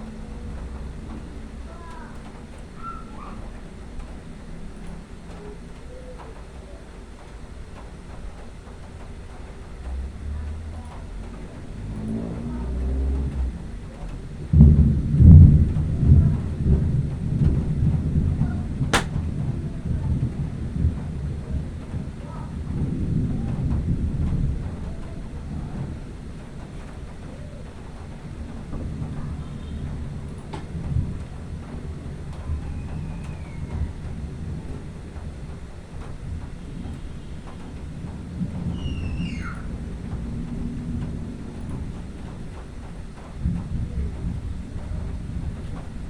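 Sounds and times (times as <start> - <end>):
thunder rumbling: 0.0 - 46.0
sharp click: 19.0 - 19.2.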